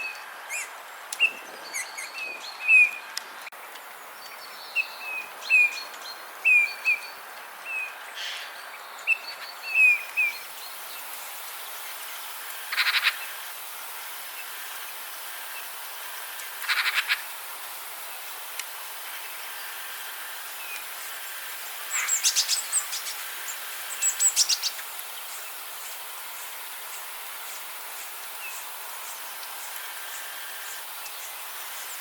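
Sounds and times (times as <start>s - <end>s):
steady hiss: 0.0s - 32.0s
bird rattling calls: 12.6s - 13.4s, 16.6s - 17.4s, 21.2s - 26.0s
birds chirping: 20.6s - 32.0s.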